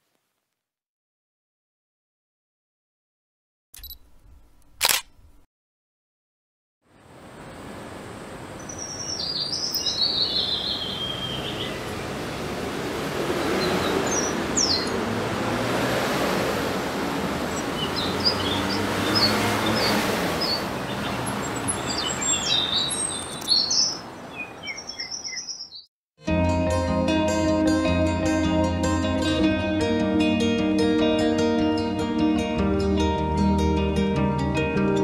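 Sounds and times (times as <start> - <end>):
bird chirps and calls: 8.6 - 11.9, 13.4 - 15.0, 17.5 - 25.9.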